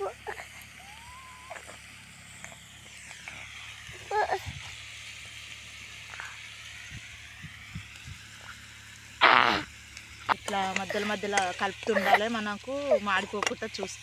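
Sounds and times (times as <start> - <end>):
tripe sizzling in a pan: 0.0 - 14.0
wood fire crackles: 0.0 - 14.0
brief pitched call: 0.8 - 1.7.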